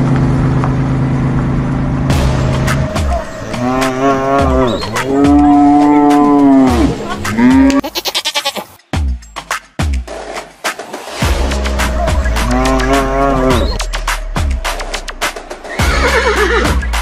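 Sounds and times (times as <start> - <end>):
cow mooing: 3.0 - 8.7, 12.2 - 13.8.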